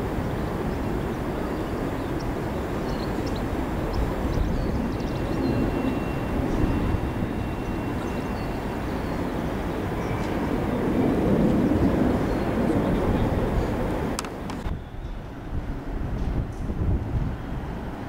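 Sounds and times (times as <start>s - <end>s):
electric train rumbling over tracks: 0.0s - 18.0s.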